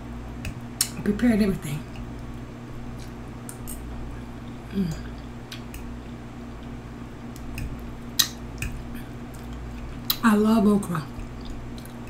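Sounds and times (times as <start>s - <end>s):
low background hum: 0.0s - 12.0s
person humming: 4.6s - 5.2s.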